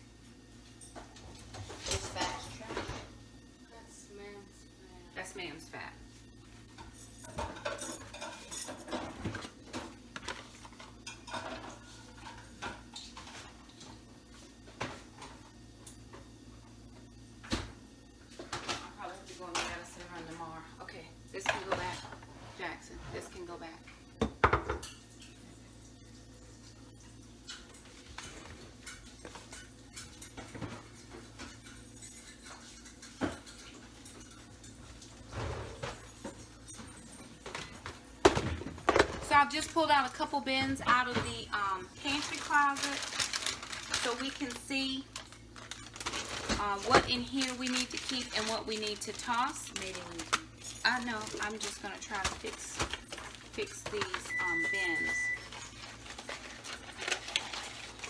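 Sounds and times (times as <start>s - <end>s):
kitchen items clattering: 0.7s - 3.2s, 6.2s - 16.2s, 17.5s - 25.6s, 26.5s - 58.0s
dishes clinking and knocking: 6.8s - 13.4s, 24.2s - 25.4s, 27.5s - 39.3s.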